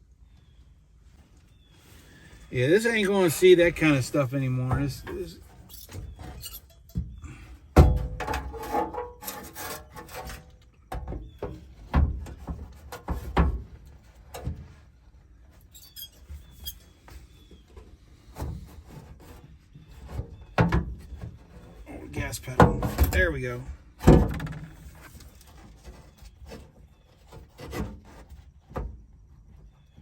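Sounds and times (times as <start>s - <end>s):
rattling and rubbing: 2.6s - 7.2s, 7.8s - 10.6s, 11.2s - 17.5s, 18.3s - 28.7s
knocks on truck: 7.8s - 8.3s.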